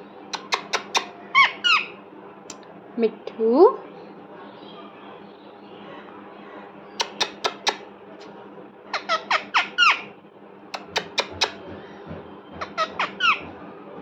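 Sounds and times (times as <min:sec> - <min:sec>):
parrot calling: 0:00.4 - 0:02.0, 0:07.0 - 0:07.8, 0:08.9 - 0:10.1, 0:10.8 - 0:12.0, 0:12.6 - 0:13.5.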